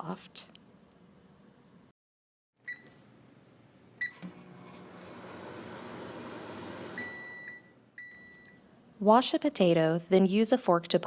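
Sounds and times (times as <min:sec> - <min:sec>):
microwave keypad beeping: 0:02.7 - 0:02.9, 0:07.0 - 0:08.6
microwave humming: 0:03.9 - 0:08.3.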